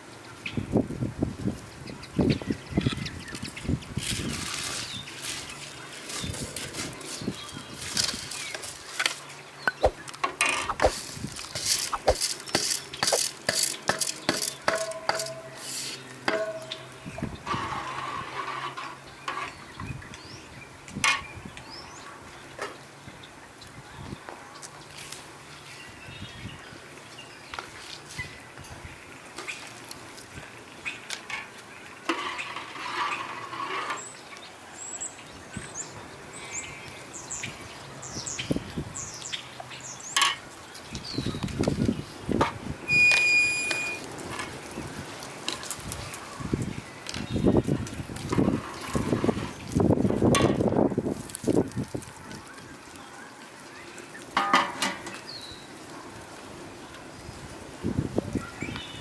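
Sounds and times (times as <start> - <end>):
rough rustling or scraping: 4.0 - 14.6, 32.1 - 34.2, 43.8 - 52.5
small birds chirping: 4.7 - 14.7, 34.0 - 42.2, 42.9 - 49.9, 58.2 - 59.0.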